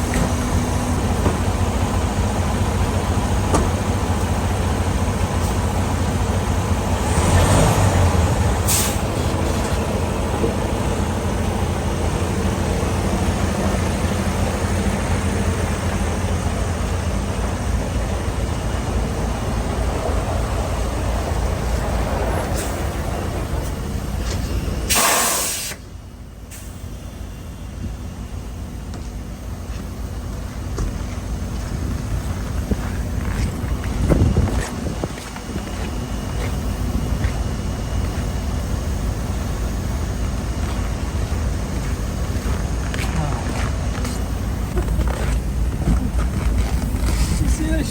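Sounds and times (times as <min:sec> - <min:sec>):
diesel truck engine running: 0:00.0 - 0:47.9
air brake hiss: 0:08.7 - 0:09.1, 0:24.9 - 0:25.9.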